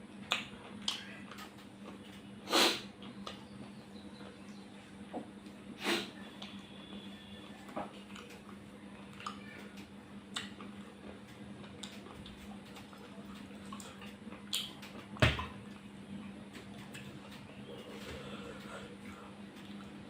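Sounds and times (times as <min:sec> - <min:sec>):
steady low hum: 0:00.0 - 0:20.0
eating clicks and smacks: 0:00.2 - 0:02.2, 0:08.1 - 0:15.9.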